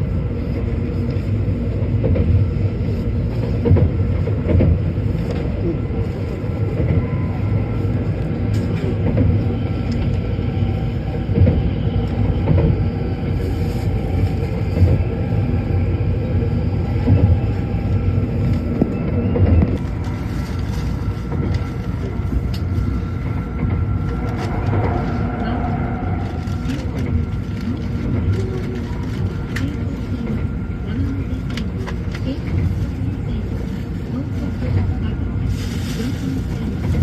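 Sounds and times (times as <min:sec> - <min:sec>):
high-speed train rumble: 0:00.0 - 0:37.0.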